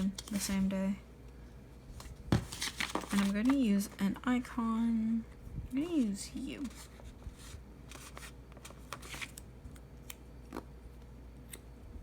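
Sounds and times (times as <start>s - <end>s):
sticker sheet rustling and peeling: 2.3s - 3.7s.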